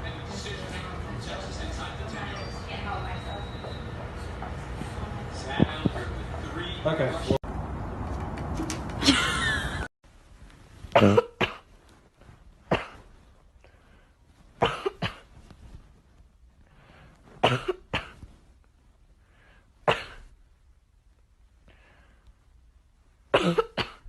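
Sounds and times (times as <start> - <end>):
short coughs: 11.0 - 11.6, 12.7 - 13.1, 14.6 - 15.3, 17.4 - 18.2, 23.4 - 24.0.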